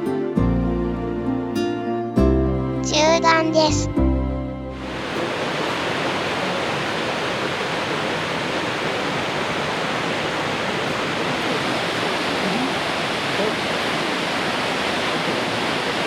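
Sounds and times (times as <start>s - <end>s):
waterfall rushing: 4.8s - 16.0s.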